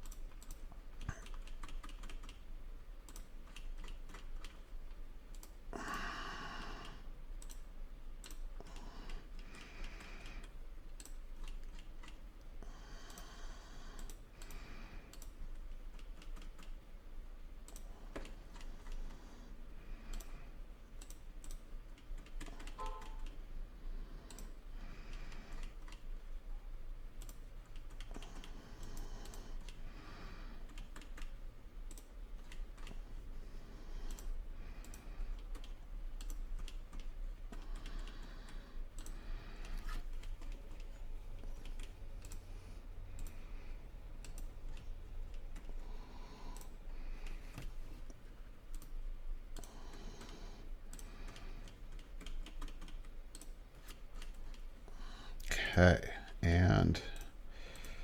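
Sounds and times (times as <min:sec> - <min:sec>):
mouse and keyboard clicking: 0:00.0 - 0:02.4, 0:03.0 - 0:04.7, 0:07.4 - 0:12.2, 0:14.0 - 0:16.8, 0:17.6 - 0:19.2, 0:21.0 - 0:23.4, 0:24.3 - 0:26.1, 0:30.7 - 0:33.0, 0:34.1 - 0:42.4, 0:44.2 - 0:45.8, 0:46.5 - 0:54.7.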